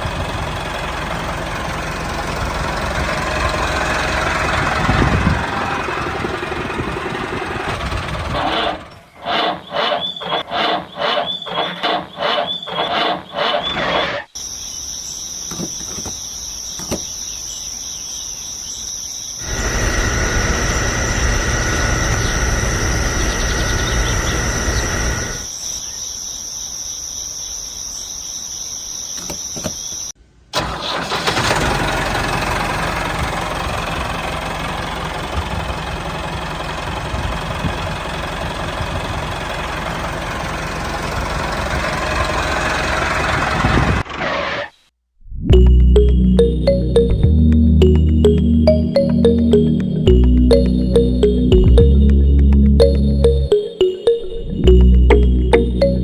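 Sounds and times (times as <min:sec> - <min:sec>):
small engine running: 0:00.0 - 0:14.3, 0:19.4 - 0:25.5
high-pitched whine: 0:19.4 - 0:25.5.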